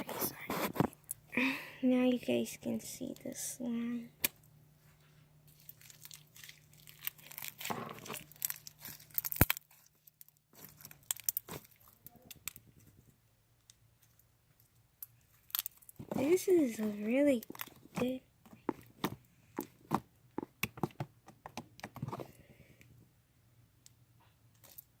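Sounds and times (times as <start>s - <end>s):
slime squished by hand: 5.5s - 12.6s
faint crackles and small pops: 5.5s - 16.2s.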